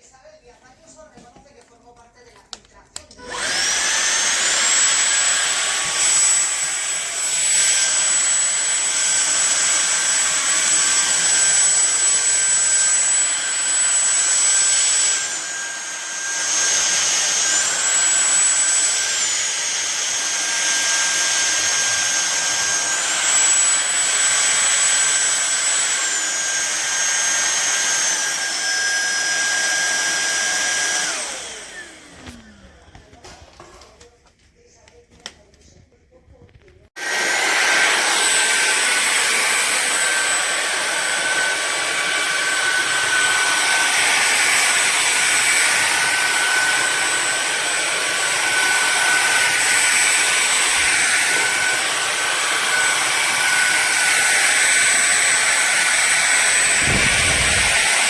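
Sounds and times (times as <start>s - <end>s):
stick vacuum motor whine: 3.0s - 33.8s, 37.0s - 58.0s.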